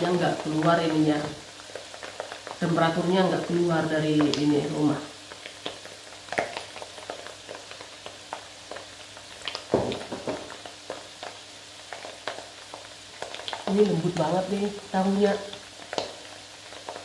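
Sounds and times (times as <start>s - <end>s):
food frying in a pan: 0.0s - 17.0s
knock: 9.7s - 10.5s.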